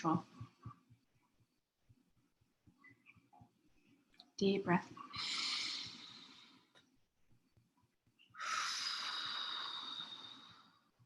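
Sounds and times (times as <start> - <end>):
person breathing deeply: 5.1 - 6.7, 8.4 - 10.9.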